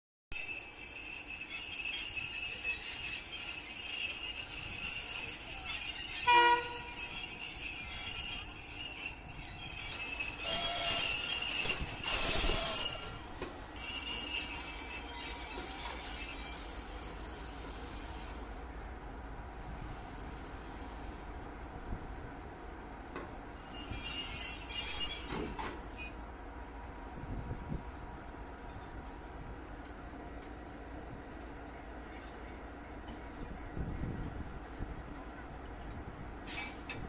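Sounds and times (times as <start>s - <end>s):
high-pitched train squeal: 0.3s - 18.6s, 23.3s - 26.4s
loud train noise: 0.3s - 37.0s.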